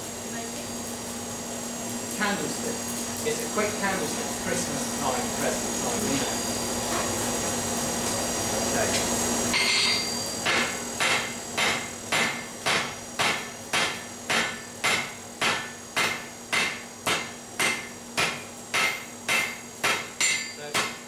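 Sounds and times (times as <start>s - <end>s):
hammer striking steel on anvil: 9.5s - 21.0s.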